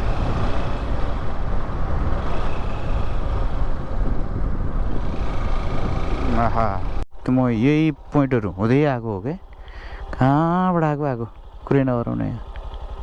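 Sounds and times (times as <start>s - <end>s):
motorcycle engine running: 0.0s - 7.0s, 9.4s - 13.0s
wind buffeting microphone: 0.0s - 7.0s
road noise: 0.0s - 13.0s.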